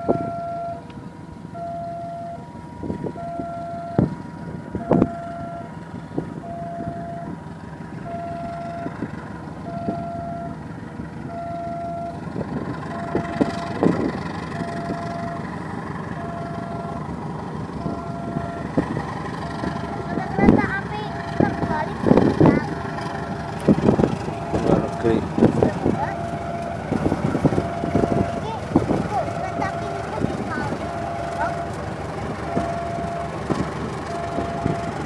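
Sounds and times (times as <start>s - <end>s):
diesel train rumbling past: 0.0s - 35.0s.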